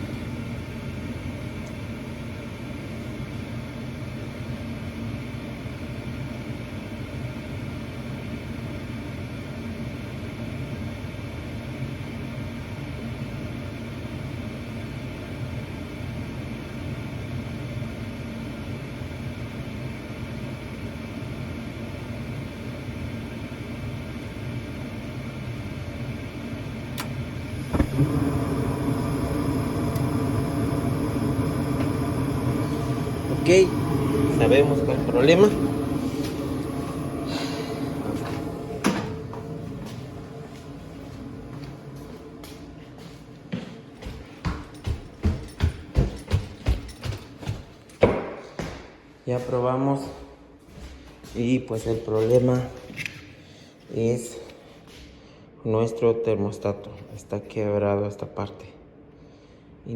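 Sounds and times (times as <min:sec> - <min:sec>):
higher steady hum: 0:00.0 - 0:50.6
gas furnace humming: 0:00.0 - 0:59.9.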